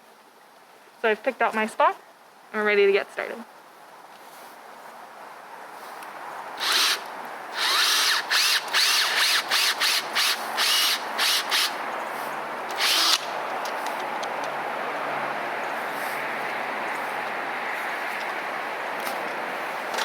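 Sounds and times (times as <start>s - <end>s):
power drill boring into wood: 6.6s - 7.0s, 7.6s - 11.8s, 12.7s - 13.2s.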